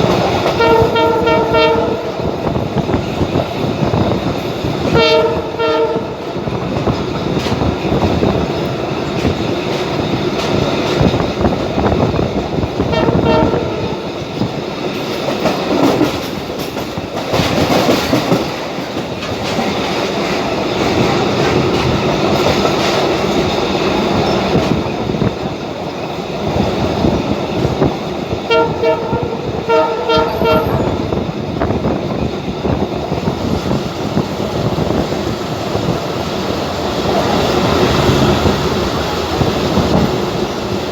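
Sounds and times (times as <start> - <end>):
train rumbling and rattling on track: 0.0 - 40.9
train horn toots: 0.4 - 2.4, 4.8 - 6.4, 12.8 - 14.1, 28.5 - 31.2.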